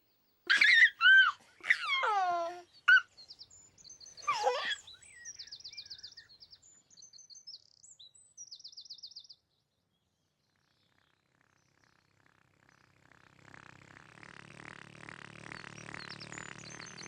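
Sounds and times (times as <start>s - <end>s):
birds chirping and trilling: 0.5s - 7.3s, 15.4s - 17.0s.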